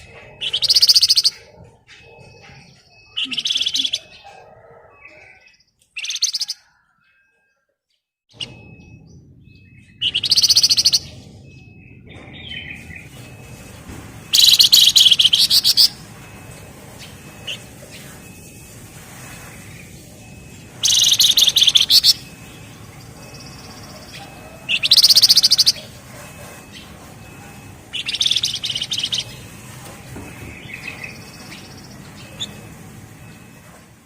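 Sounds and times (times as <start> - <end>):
bird drilling trill song: 0.0 - 4.3, 5.0 - 6.7, 8.3 - 11.2, 14.3 - 16.1, 20.6 - 26.0, 26.7 - 32.7
faint bird chirps: 0.0 - 13.4, 14.2 - 29.6, 30.3 - 33.5.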